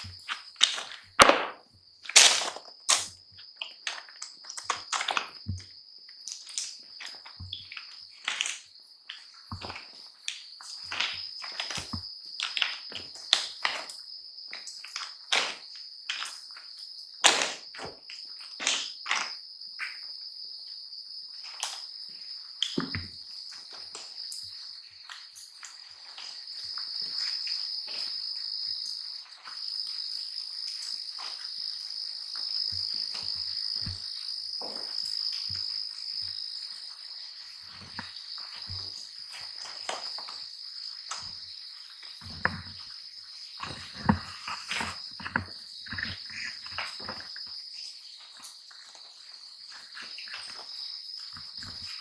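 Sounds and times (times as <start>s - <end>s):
crickets chirping: 0.0s - 52.0s.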